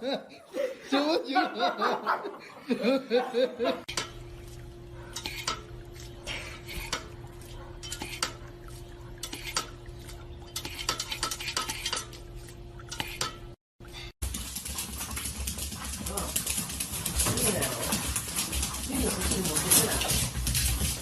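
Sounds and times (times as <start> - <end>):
dishes and cutlery clinking: 3.8 - 13.6, 14.4 - 21.0.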